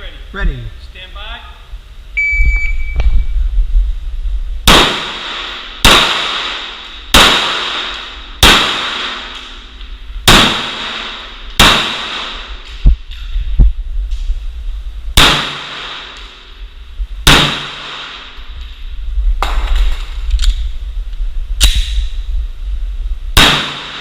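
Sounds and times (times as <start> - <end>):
pistol shots with ringing echo: 4.7 - 9.4, 10.3 - 12.6, 15.2 - 16.3, 17.2 - 18.4, 23.4 - 24.0.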